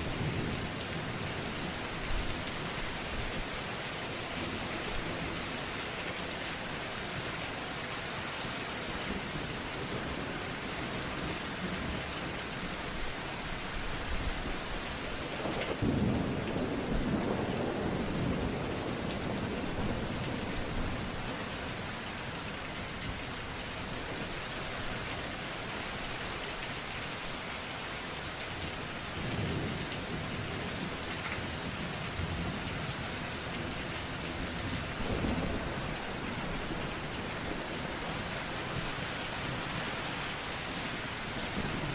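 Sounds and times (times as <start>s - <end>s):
heavy rain: 0.0s - 41.9s.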